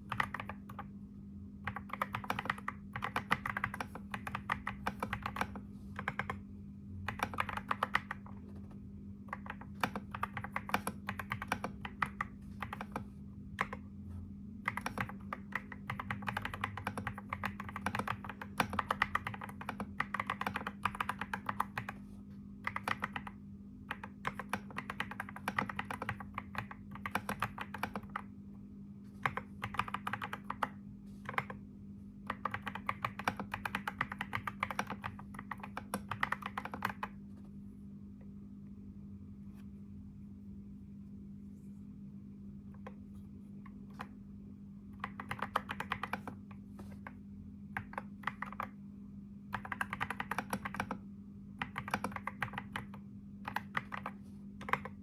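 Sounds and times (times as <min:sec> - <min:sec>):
fast typing on keyboard: 0:00.0 - 0:00.9, 0:01.6 - 0:06.4, 0:07.0 - 0:08.4, 0:09.2 - 0:13.8, 0:14.6 - 0:28.3, 0:29.2 - 0:31.6, 0:32.2 - 0:37.2, 0:45.0 - 0:48.8, 0:49.5 - 0:51.0, 0:51.6 - 0:55.0
faint steady hum: 0:00.0 - 0:55.0.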